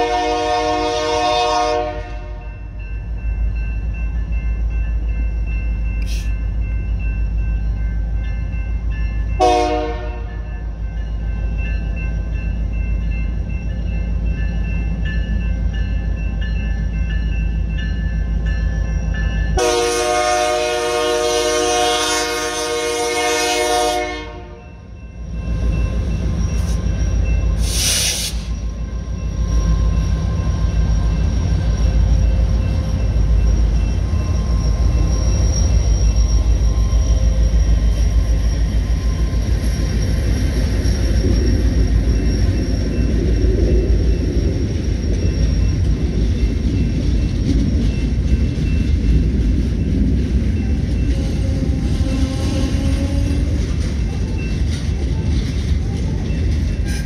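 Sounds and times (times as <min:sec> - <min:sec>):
locomotive air horn: 0:00.0 - 0:02.4, 0:09.4 - 0:10.4, 0:19.6 - 0:24.6
train rumbling past: 0:00.0 - 0:57.0
brief hiss: 0:06.0 - 0:06.3, 0:27.6 - 0:28.5.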